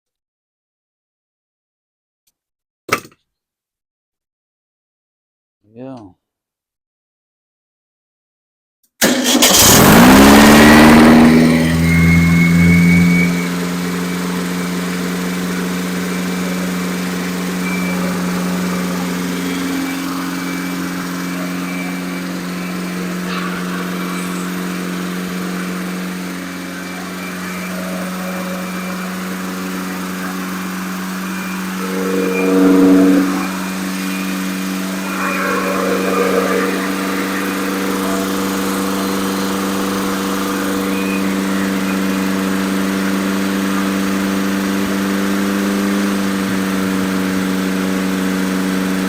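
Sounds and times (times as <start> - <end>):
engine revving: 9.0 - 49.0
engine running: 9.0 - 49.0.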